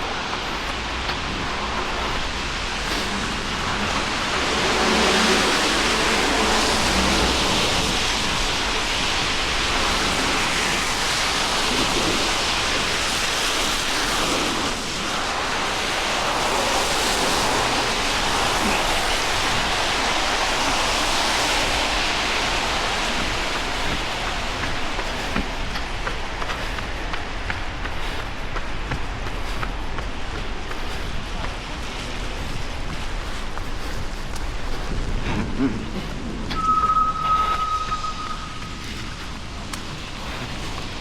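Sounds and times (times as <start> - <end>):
rain falling on street: 0.0 - 36.6, 37.6 - 41.0
low hum: 28.5 - 41.0.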